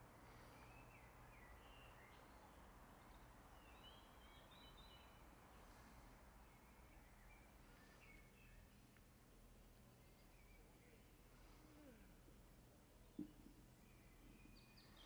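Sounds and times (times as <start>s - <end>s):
birds chirping: 0.0s - 9.0s, 13.0s - 15.0s.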